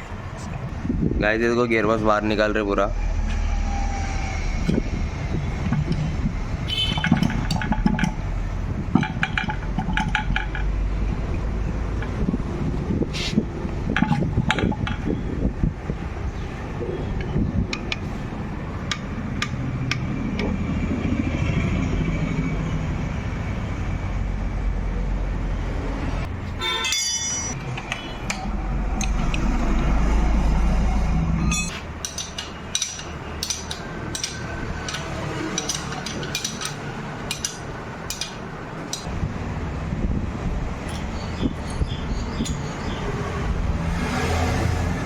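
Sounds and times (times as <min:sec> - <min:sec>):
metallic clicks and taps: 0:17.2 - 0:18.1, 0:18.8 - 0:20.6, 0:27.5 - 0:29.5, 0:31.5 - 0:39.1.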